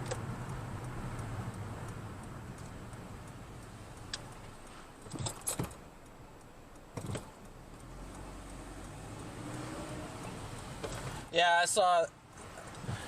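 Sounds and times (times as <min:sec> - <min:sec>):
car road and engine hum: 0:00.0 - 0:13.0.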